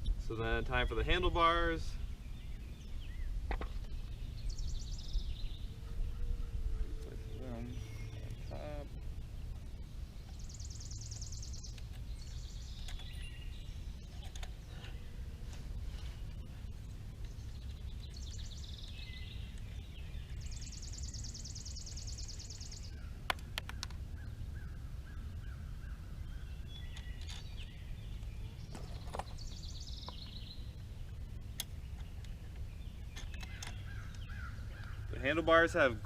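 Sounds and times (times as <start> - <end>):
low background rumble: 0.0 - 36.0
handlebar parts clicking: 31.5 - 35.0
songbird falling call: 31.6 - 35.9.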